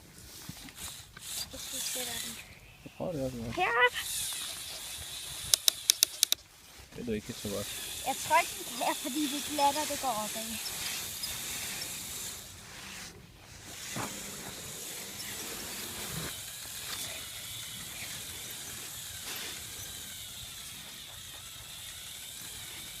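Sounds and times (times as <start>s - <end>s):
steady hiss: 0.0s - 23.0s
small electric motors whining: 0.4s - 23.0s
sharp clicks: 5.4s - 6.4s.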